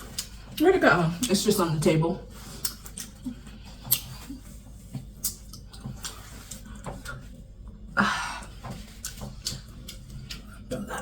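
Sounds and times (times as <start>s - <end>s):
wet chewing with mouth clicks: 0.0s - 0.6s, 2.3s - 11.0s
lip smacks: 2.5s - 4.4s, 5.0s - 7.2s, 9.0s - 10.7s.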